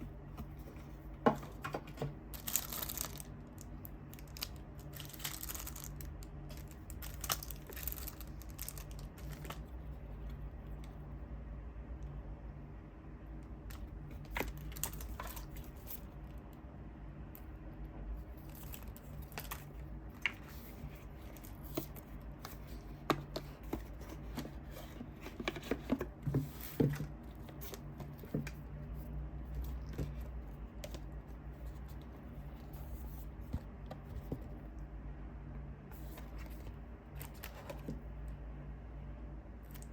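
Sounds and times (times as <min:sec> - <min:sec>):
packaging rustling: 0:00.4 - 0:09.8.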